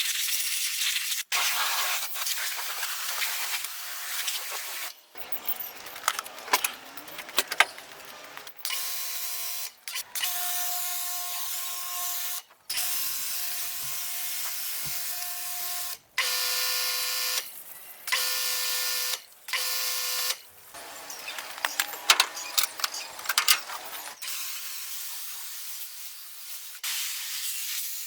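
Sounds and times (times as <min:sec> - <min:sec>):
clicks and knocks: 0:21.1 - 0:24.2.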